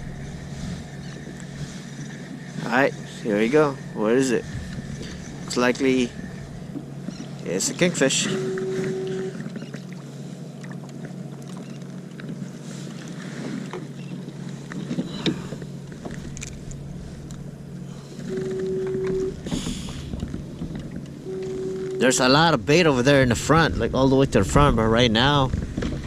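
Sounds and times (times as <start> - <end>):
short steady tone: 0.0 - 9.7, 16.8 - 20.1, 21.2 - 22.6
steady low hum: 0.0 - 26.0.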